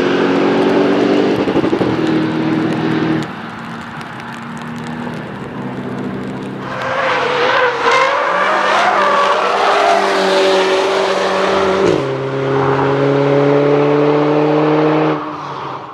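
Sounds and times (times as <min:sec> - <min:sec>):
racing car engine: 0:06.4 - 0:15.8.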